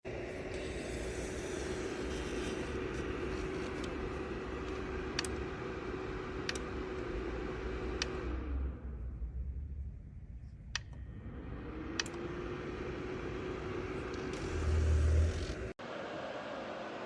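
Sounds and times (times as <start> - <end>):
heater fan humming and hissing: 0.1 - 17.0
sharp clicks: 10.7 - 11.0.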